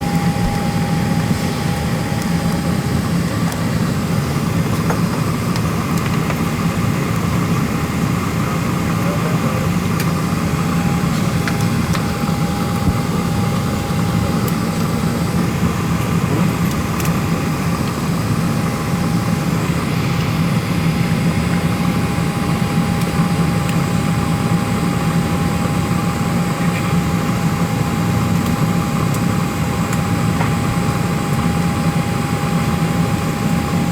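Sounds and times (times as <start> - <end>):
thin whine: 0.0 - 4.2
low cabin hum: 0.0 - 5.1
air-conditioning airflow rush: 0.0 - 33.9.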